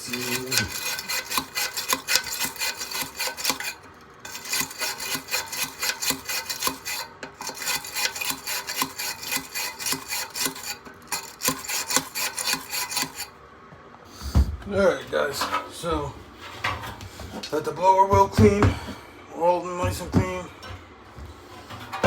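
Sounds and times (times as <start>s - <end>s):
stiff brush scrubbing fins: 0.0s - 13.3s.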